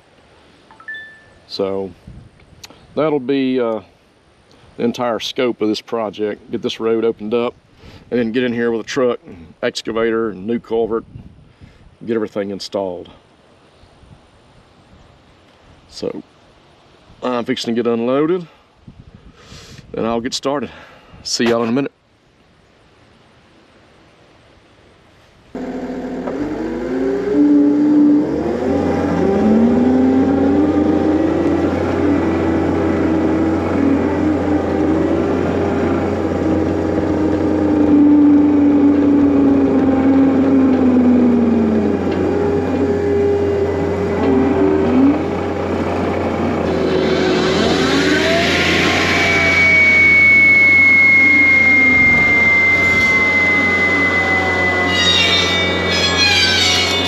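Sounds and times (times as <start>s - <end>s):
diesel engine running under load: 25.6s - 57.0s
steady high whine: 25.6s - 57.0s.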